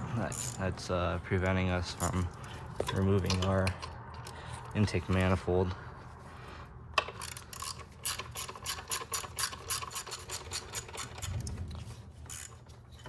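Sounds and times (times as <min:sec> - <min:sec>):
hand ratchet clicking rapidly: 0:07.0 - 0:11.4, 0:12.3 - 0:12.6.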